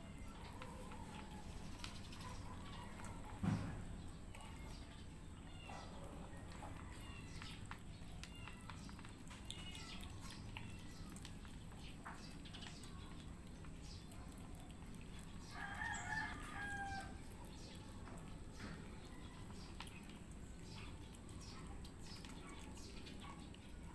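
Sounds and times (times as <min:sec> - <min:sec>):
cats crunching dry food: 0:06.0 - 0:23.8
rooster crowing: 0:15.5 - 0:17.2.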